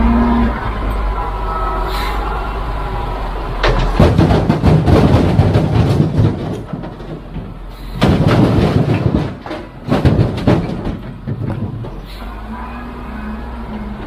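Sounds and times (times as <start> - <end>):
low engine rumble: 0.0 - 14.0
machinery clattering metal knocks: 3.5 - 12.2.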